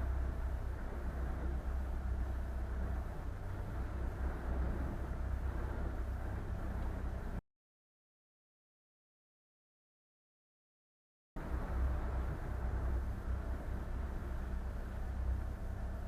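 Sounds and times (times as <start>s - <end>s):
boat engine droning: 0.0s - 7.4s, 11.4s - 16.0s.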